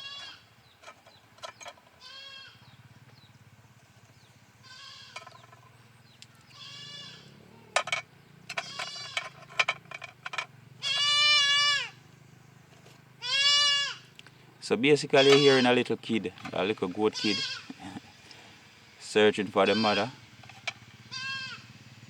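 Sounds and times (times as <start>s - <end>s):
goat kid bleating: 0.0s - 0.4s, 2.0s - 2.6s, 4.6s - 5.2s, 6.5s - 7.8s, 8.6s - 9.3s, 10.8s - 12.0s, 13.2s - 14.1s, 15.1s - 15.8s, 17.1s - 18.0s, 19.6s - 20.1s, 21.1s - 21.6s.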